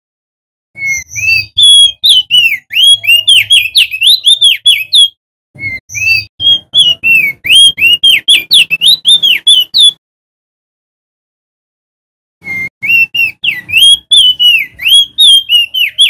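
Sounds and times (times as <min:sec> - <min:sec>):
bird singing whistled notes: 0:00.8 - 0:10.0, 0:12.4 - 0:16.0.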